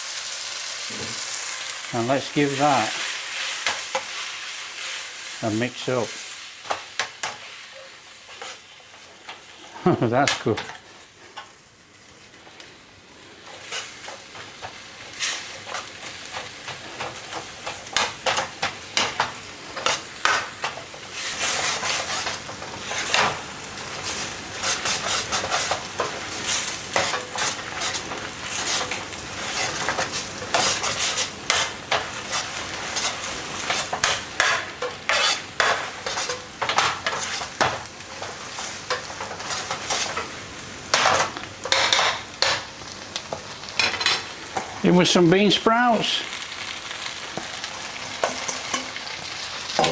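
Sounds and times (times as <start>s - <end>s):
noodles sizzling in a hot pan: 0.0s - 49.9s
utensil scraping against pan: 6.6s - 9.4s, 15.1s - 40.3s.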